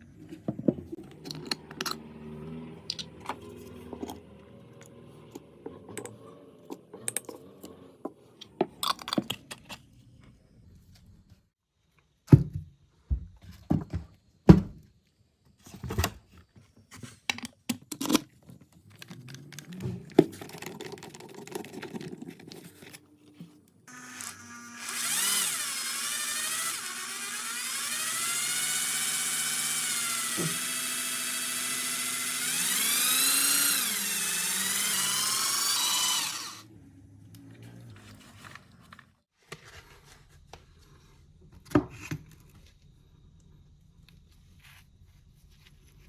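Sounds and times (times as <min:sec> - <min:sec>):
small power tool whining: 0:00.9 - 0:08.4, 0:23.9 - 0:36.7.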